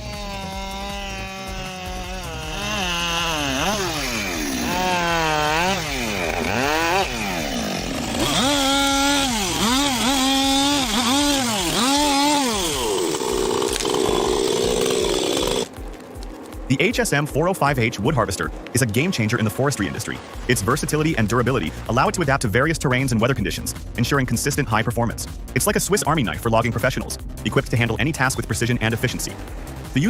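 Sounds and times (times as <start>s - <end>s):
chainsaw cutting wood: 0.0s - 16.7s.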